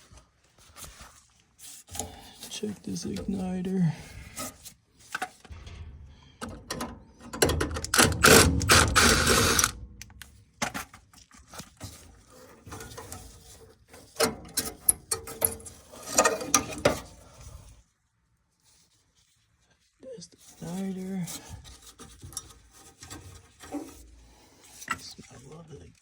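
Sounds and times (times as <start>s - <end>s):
hand tools clicking and rattling: 6.4s - 10.3s.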